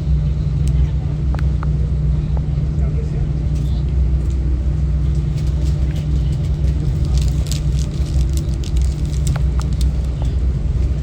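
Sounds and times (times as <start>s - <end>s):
ferry engines rumbling: 0.0s - 11.0s
faint crackles: 5.1s - 10.4s.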